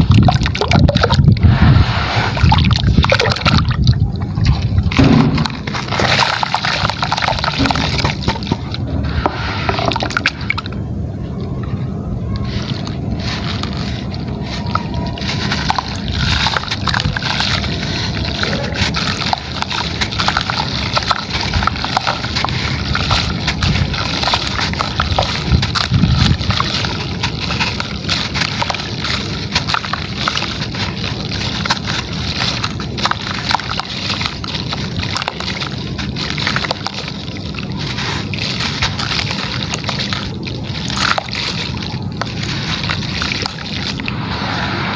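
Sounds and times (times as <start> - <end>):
gritty material crumbling in water: 0.0 - 10.8, 12.3 - 44.5
water sloshing: 0.0 - 44.9
small crackles and clicks: 11.4 - 44.1.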